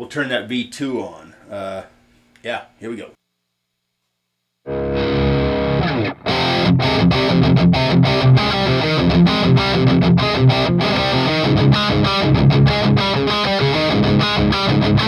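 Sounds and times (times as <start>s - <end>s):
distorted electric guitar: 4.7s - 15.0s.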